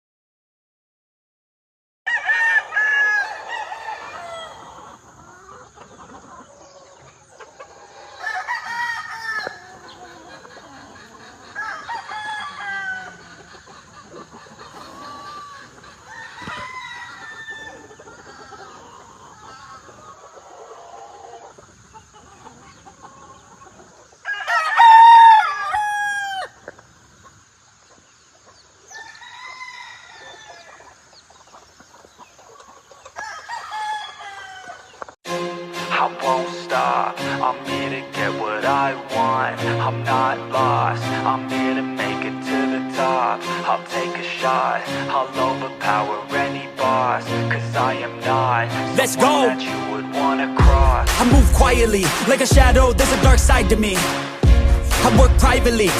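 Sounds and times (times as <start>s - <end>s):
roosters crowing: 2.1s - 21.6s, 22.2s - 26.8s, 28.8s - 35.1s.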